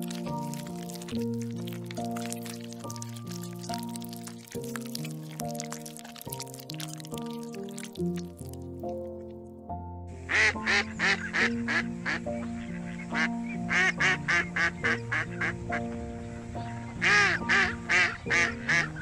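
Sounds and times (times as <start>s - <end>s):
background music: 0.0s - 19.0s
duck quacking: 10.3s - 15.5s, 17.0s - 19.0s.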